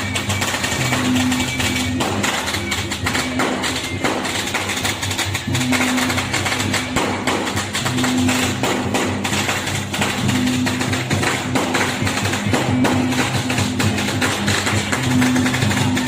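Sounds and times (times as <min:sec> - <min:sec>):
clashing cymbals and drums: 0:00.0 - 0:16.0.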